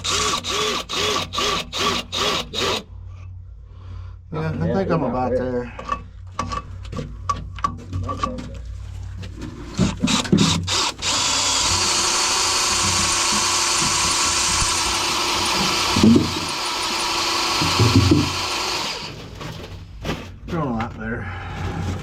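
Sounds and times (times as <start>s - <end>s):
handheld power tool running: 0.0s - 2.8s, 9.8s - 19.6s.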